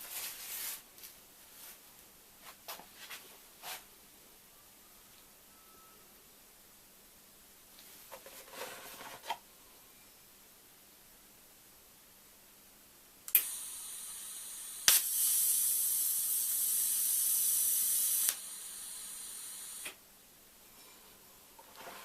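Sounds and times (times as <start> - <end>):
shielding gas hissing: 13.3 - 20.0
welding arc crack: 13.3 - 20.0
welding arc sizzling hiss: 13.3 - 20.0.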